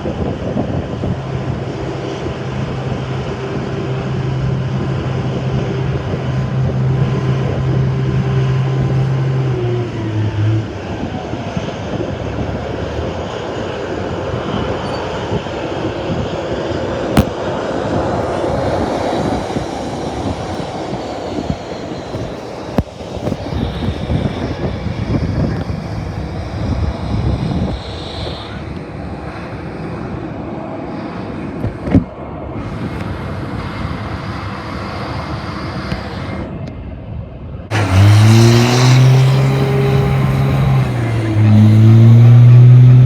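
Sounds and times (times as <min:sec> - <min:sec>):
steady low hum: 0:00.0 - 0:11.2
gusty wind on microphone: 0:00.0 - 0:43.0
jet airliner engines running: 0:00.0 - 0:43.0.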